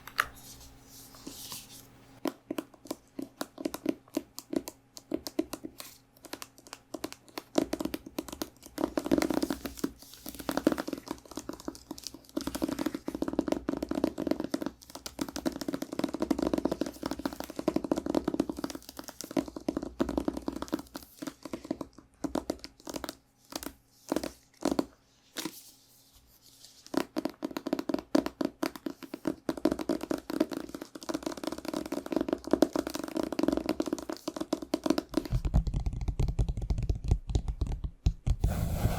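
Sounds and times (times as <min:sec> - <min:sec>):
fingernails scratching on a book: 0:38.4 - 0:38.9.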